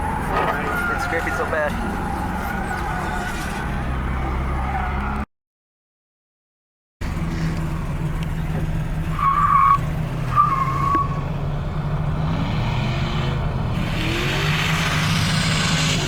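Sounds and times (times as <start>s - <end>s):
tyre squeals: 0.0s - 3.7s.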